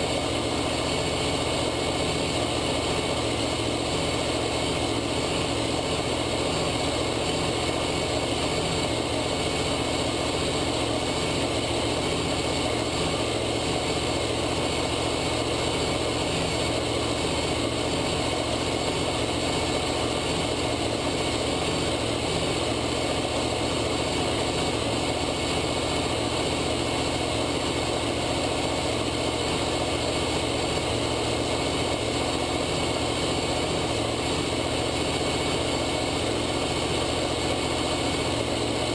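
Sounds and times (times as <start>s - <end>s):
engine hum: 0.0s - 38.9s.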